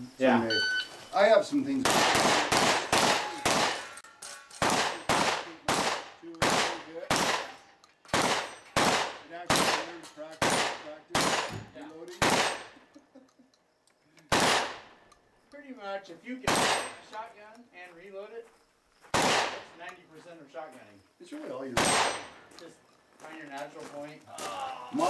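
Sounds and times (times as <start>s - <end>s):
shotgun shots: 1.8s - 4.0s, 4.6s - 12.8s, 14.3s - 15.0s, 16.4s - 17.1s, 19.1s - 19.8s, 21.7s - 22.4s.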